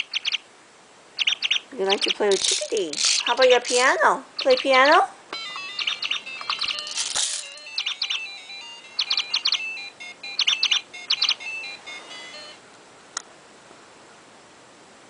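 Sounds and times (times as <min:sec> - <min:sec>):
electronic toy bird chirping: 0:00.0 - 0:00.4, 0:01.2 - 0:12.6
held electronic tones: 0:05.4 - 0:12.6.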